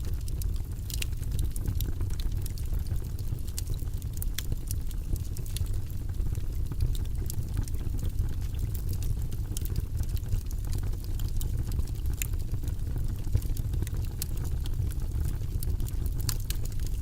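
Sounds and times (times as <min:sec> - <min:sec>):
low rumble of flames: 0:00.0 - 0:17.0
wood fire crackling and popping: 0:00.0 - 0:17.0.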